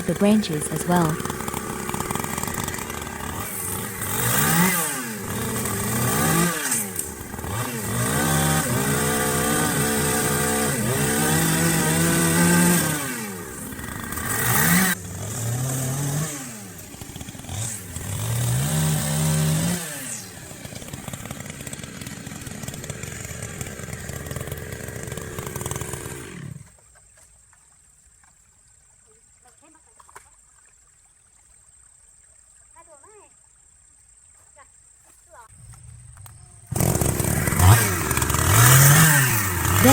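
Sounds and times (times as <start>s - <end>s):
chainsaw revving: 0.0s - 26.8s, 35.5s - 39.9s.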